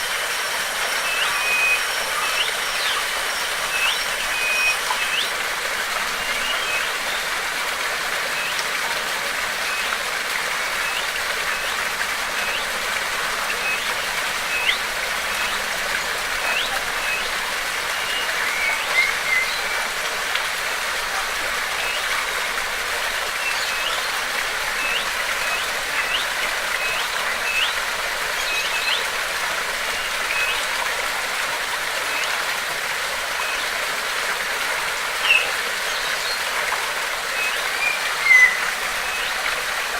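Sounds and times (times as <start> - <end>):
flowing water: 0.0 - 39.9
small bird chirping: 37.4 - 39.4.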